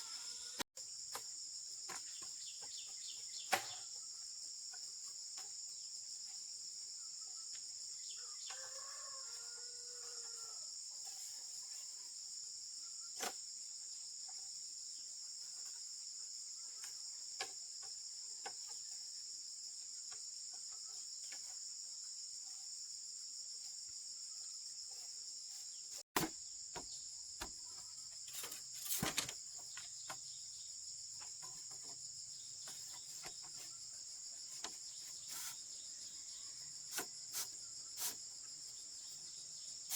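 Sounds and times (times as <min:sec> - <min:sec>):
crickets chirping: 0:00.0 - 0:39.9
sharp knocks and clatter: 0:28.3 - 0:30.2.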